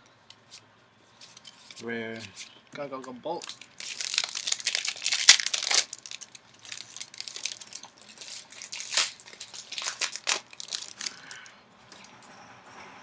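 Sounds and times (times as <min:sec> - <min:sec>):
foil wrapper crinkling and tearing: 0:03.3 - 0:11.5.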